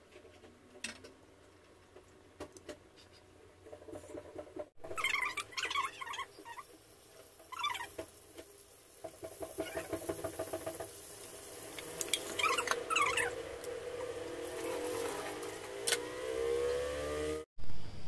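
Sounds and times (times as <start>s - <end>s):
food sizzling in oil: 4.9s - 15.8s.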